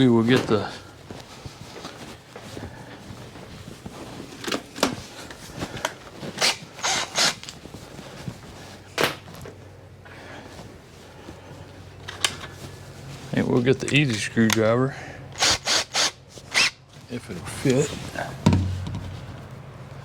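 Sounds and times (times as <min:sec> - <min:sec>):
hardware clicks and knocks: 0:18.5 - 0:19.5.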